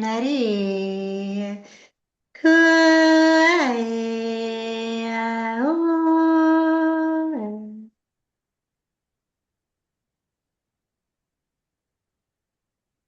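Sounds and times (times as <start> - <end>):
woman singing wordless held notes: 0.0 - 1.8, 2.4 - 7.9.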